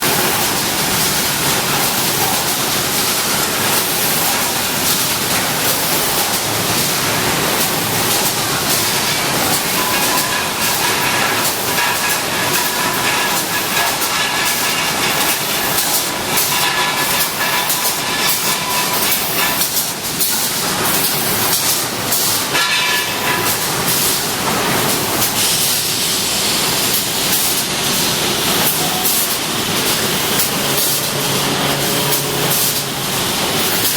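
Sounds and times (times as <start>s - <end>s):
machine mechanical clatter: 0.0s - 33.9s
high whine: 30.4s - 33.6s.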